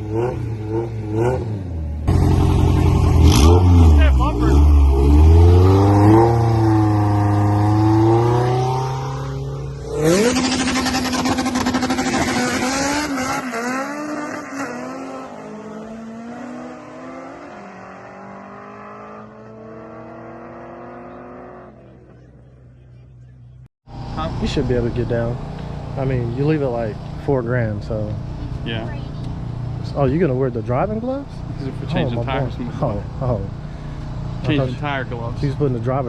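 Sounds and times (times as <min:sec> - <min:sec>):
drag racing car engine revving: 0:00.0 - 0:22.2.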